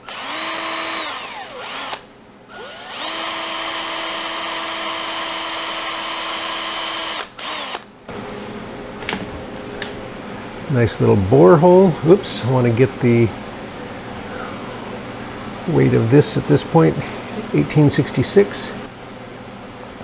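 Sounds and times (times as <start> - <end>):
power drill whining: 0.0 - 7.9.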